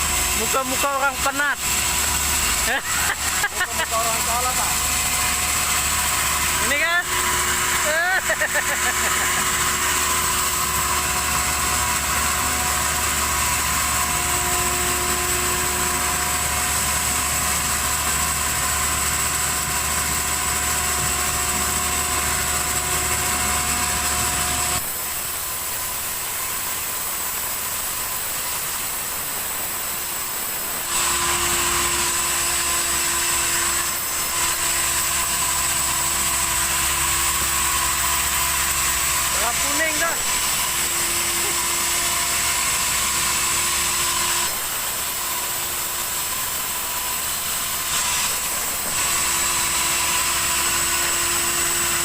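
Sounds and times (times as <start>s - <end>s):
sawmill saw cutting log: 0.0s - 52.0s.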